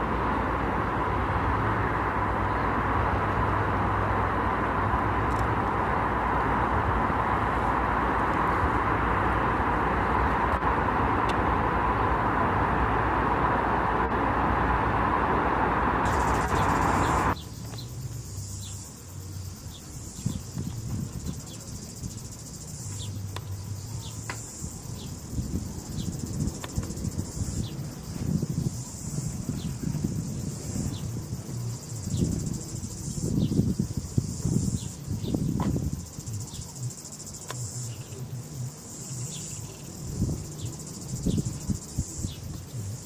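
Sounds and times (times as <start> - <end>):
loud rumbling noise: 0.0 - 17.4
low background rumble: 0.0 - 43.0
insects chirping: 16.1 - 43.0.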